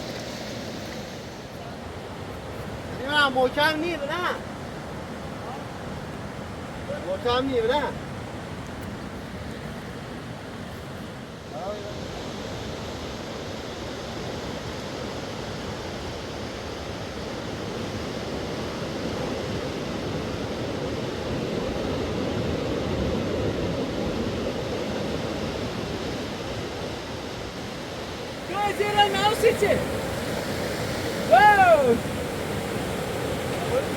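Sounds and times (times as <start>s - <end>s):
fast-flowing river rushing: 26.9s - 33.9s.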